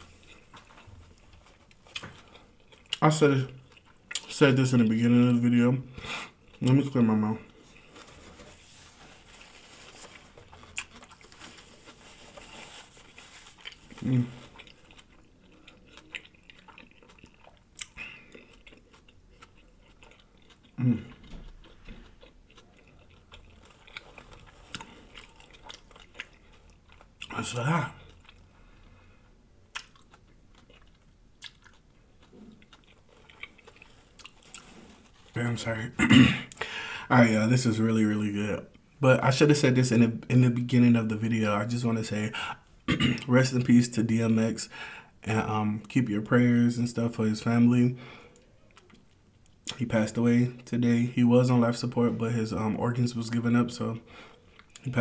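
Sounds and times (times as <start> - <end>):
person chewing and swallowing: 0.0 - 4.4, 6.0 - 35.4.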